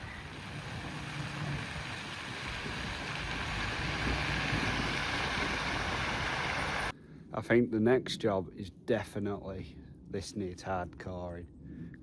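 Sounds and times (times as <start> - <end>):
lorry engine running: 0.0 - 6.9
wind or road noise rushing: 0.0 - 6.9.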